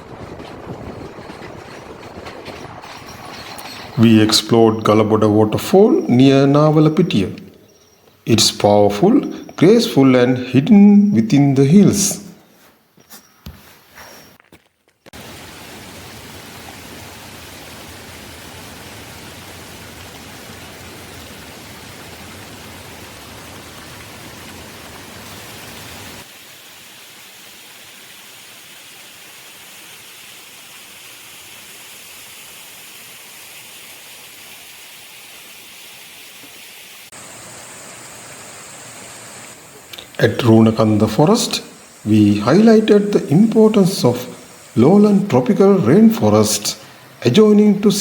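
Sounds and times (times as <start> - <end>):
waterfall rushing: 2.9 - 12.4, 15.2 - 48.0
steady high tone: 4.0 - 7.7, 8.3 - 12.4.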